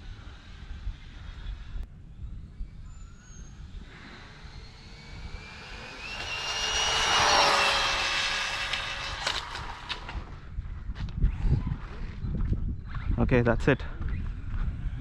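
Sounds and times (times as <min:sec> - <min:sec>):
rc car motor whining: 0:00.0 - 0:10.2.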